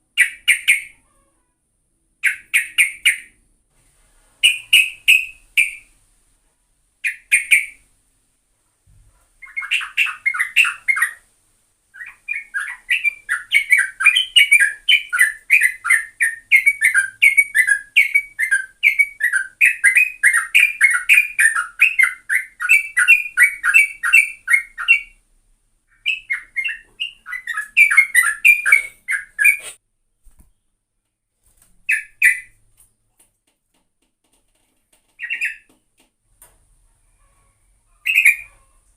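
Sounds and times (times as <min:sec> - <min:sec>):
bulbul singing: 0:04.4 - 0:06.0, 0:09.4 - 0:11.2, 0:12.0 - 0:25.2, 0:25.9 - 0:29.7, 0:35.2 - 0:35.7.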